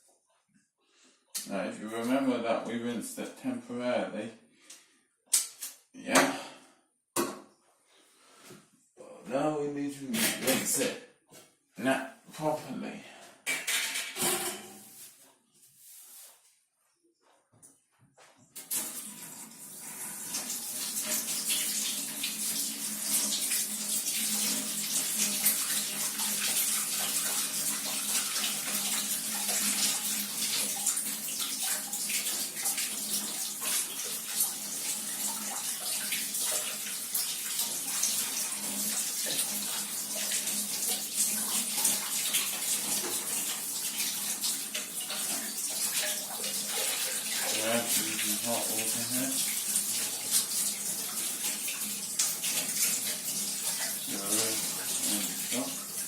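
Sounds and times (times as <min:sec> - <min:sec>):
tap water splashing in sink: 0:18.6 - 0:56.0.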